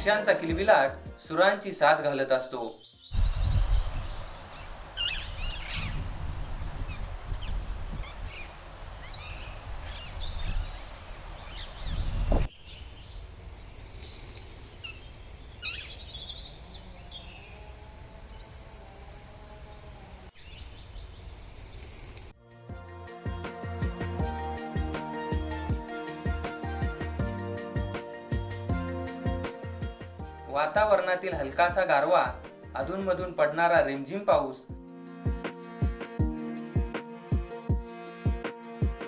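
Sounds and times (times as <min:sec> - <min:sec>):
birds chirping and calling: 0:02.7 - 0:22.0.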